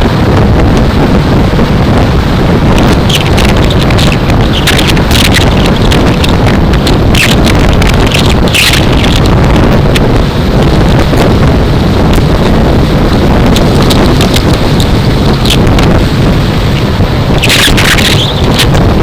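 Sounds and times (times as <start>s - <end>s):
wind buffeting microphone: 0.0s - 19.0s
motorcycle engine: 0.9s - 19.0s
sharp ticks: 2.8s - 9.3s, 17.4s - 18.8s.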